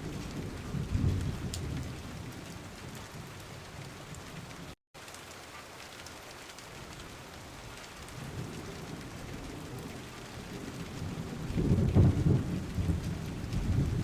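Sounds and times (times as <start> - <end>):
low thunder rumble: 0.0 - 4.0, 8.2 - 14.0
steady rain: 0.0 - 14.0.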